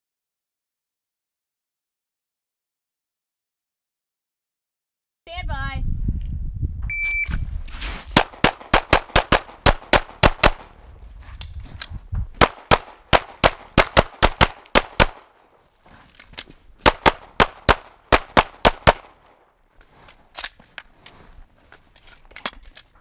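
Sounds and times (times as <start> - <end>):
handgun shots: 8.2 - 10.8, 12.4 - 15.4, 16.8 - 19.4.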